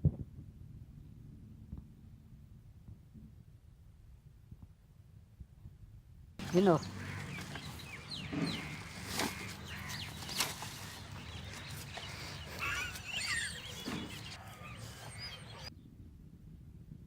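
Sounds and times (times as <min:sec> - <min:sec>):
birds chirping: 0:06.4 - 0:15.8.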